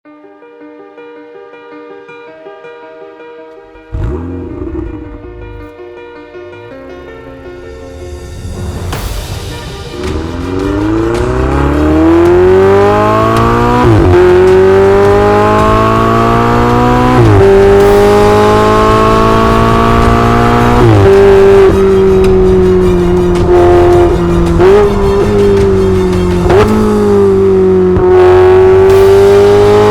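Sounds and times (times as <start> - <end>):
sports car engine accelerating: 3.7 - 5.8, 10.0 - 29.9.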